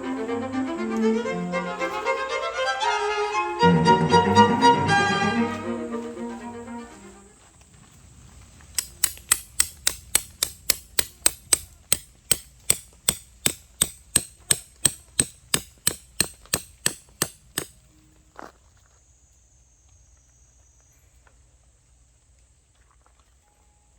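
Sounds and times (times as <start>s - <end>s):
hammer striking: 8.8s - 17.7s.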